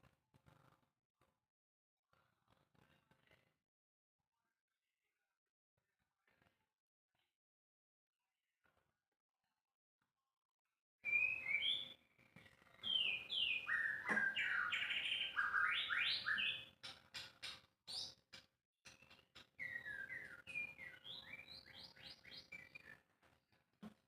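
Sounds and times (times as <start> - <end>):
bird singing whistled notes: 11.0 - 12.0, 12.8 - 16.8, 18.9 - 23.0
sharp ticking bird notes: 12.8 - 22.4.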